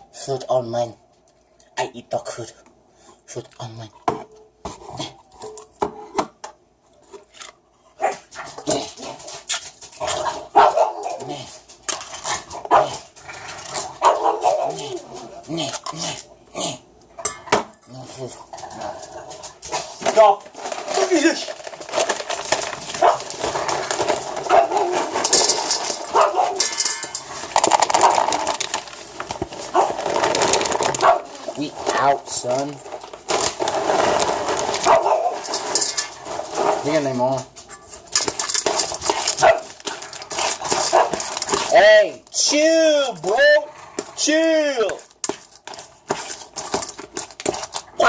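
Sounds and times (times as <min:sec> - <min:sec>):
dogs barking and yelping: 0:07.9 - 0:08.6, 0:09.2 - 0:11.4, 0:12.2 - 0:15.5, 0:22.5 - 0:29.0, 0:29.6 - 0:31.6, 0:34.6 - 0:36.2, 0:38.8 - 0:41.5
dishes clinking: 0:17.2 - 0:18.0, 0:24.5 - 0:28.7
clicks and clatters: 0:18.6 - 0:31.9, 0:32.5 - 0:36.8, 0:37.5 - 0:41.8, 0:44.9 - 0:48.0.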